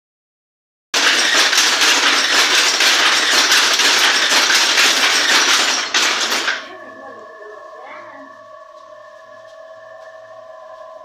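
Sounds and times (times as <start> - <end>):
weaving loom clattering: 1.0 - 6.9.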